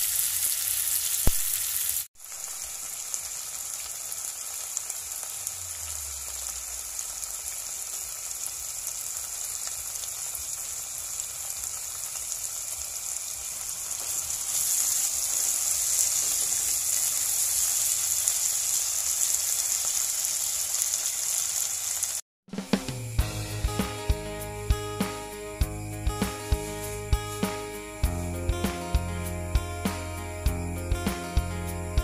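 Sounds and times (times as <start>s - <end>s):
food sizzling in a pan: 0.0s - 32.0s.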